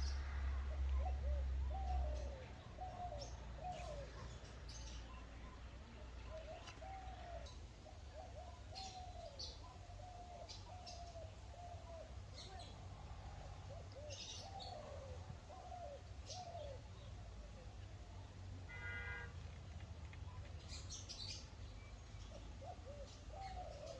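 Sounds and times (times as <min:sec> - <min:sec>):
birds calling: 0:00.0 - 0:19.3, 0:20.2 - 0:23.9.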